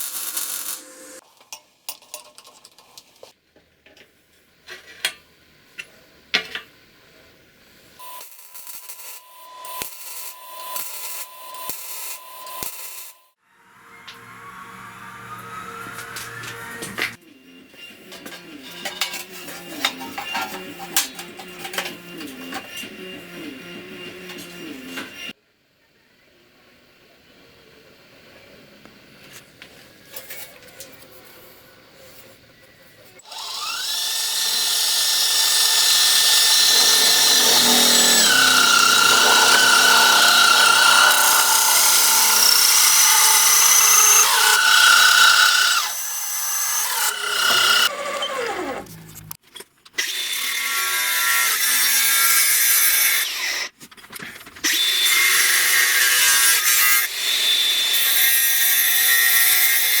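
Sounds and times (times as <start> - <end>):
electric power tool motor whine: 14.1 - 25.3, 33.2 - 48.9.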